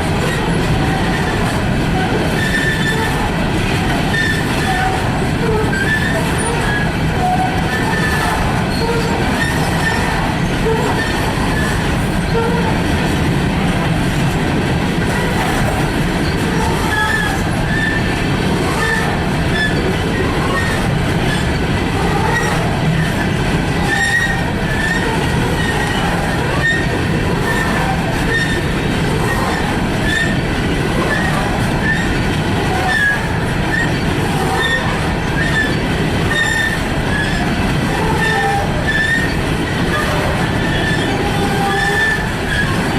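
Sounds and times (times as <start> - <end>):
freight train rolling past: 0.0 - 42.9
train wheels squealing: 2.4 - 3.2, 4.1 - 5.0, 5.6 - 12.4, 23.9 - 26.9, 32.9 - 37.4, 38.2 - 42.8.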